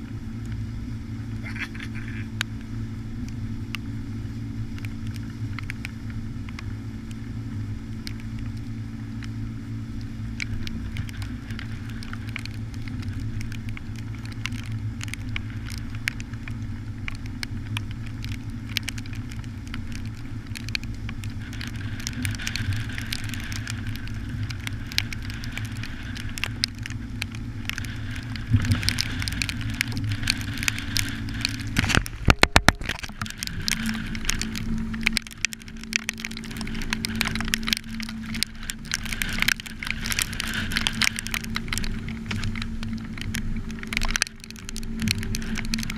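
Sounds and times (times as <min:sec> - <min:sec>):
crackle of sharp ticks: 0:00.0 - 0:45.9
engine humming: 0:00.0 - 0:45.9.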